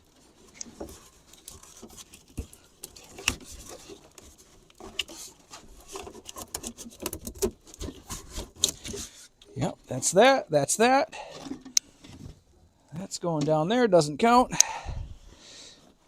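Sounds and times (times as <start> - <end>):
wiring harness rustling and scratching: 0.0 - 10.2
small clicks and knocks: 0.4 - 9.5.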